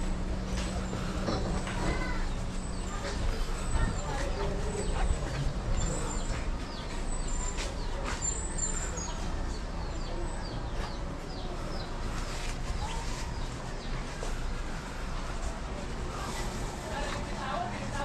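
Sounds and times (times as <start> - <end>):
small birds chirping: 0.5 - 14.4.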